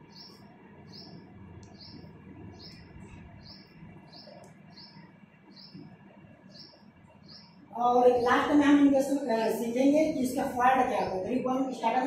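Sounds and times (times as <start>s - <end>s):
bird chirping: 0.0s - 8.9s
faint steady hum: 0.0s - 12.0s.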